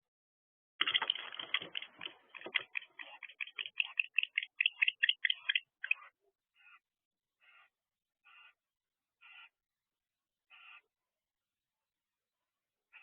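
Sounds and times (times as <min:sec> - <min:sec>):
owls chittering clicking calls: 0:00.9 - 0:06.8.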